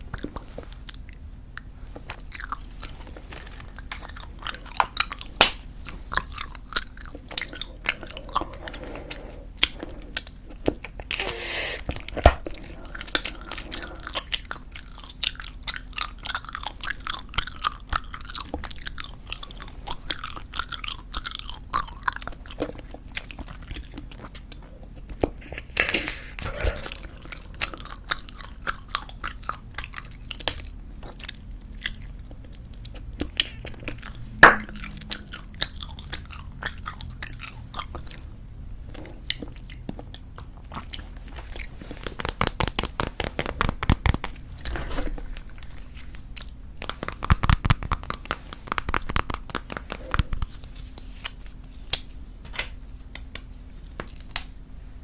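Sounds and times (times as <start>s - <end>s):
wet bubblegum chewing clicks: 41.4s - 44.5s, 46.4s - 50.5s.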